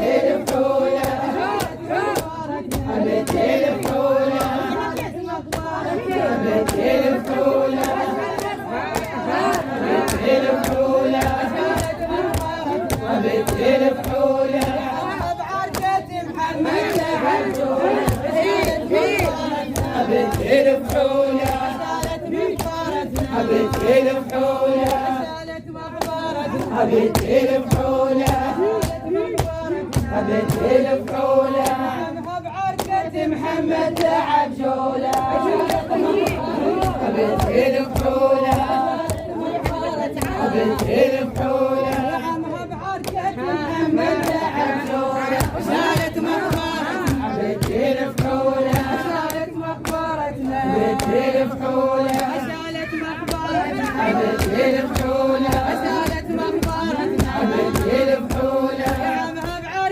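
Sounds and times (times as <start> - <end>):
crowd chanting: 0.0 - 59.9
steady percussive beat: 35.1 - 42.2.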